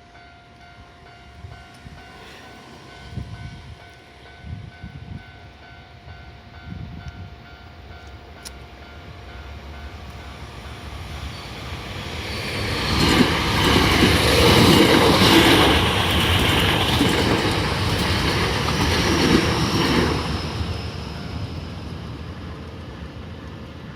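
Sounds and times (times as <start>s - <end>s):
train wheels clacking over rail joints: 12.4s - 20.8s.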